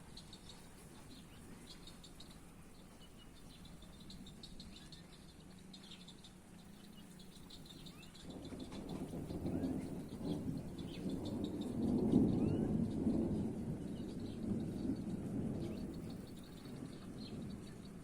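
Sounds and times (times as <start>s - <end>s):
night chorus chirping: 0.0s - 18.0s
low thunder rumble: 7.7s - 18.0s.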